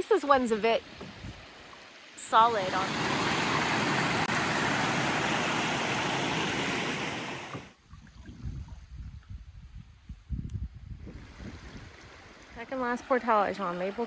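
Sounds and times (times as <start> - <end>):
creek water rushing: 0.0 - 7.8, 11.1 - 14.0.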